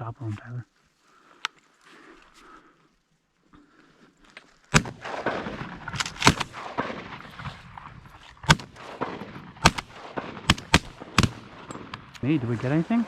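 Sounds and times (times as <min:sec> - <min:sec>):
shotgun shots echoing: 0:04.7 - 0:13.0.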